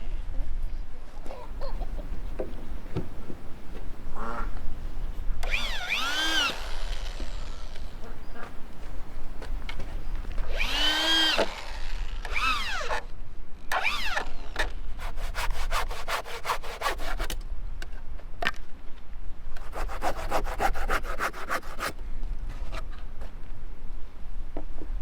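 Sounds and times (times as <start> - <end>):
high arching squeaks: 1.3 - 6.9, 7.6 - 11.4
quick rasping strokes: 1.3 - 11.4, 15.0 - 17.4, 19.6 - 22.0.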